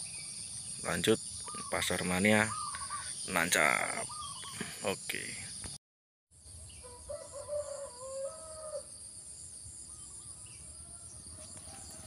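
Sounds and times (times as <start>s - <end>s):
insects buzzing: 0.0s - 5.8s, 6.6s - 12.0s
bird drawn-out call: 1.4s - 4.7s.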